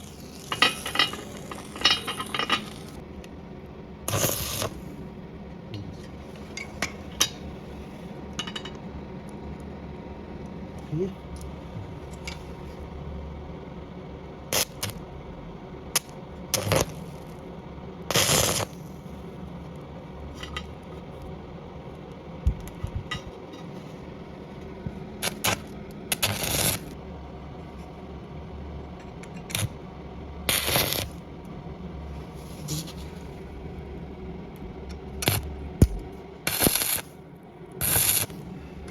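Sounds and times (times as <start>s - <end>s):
low machine hum: 0.0s - 38.9s
scrap metal clinking and scraping: 0.4s - 3.0s.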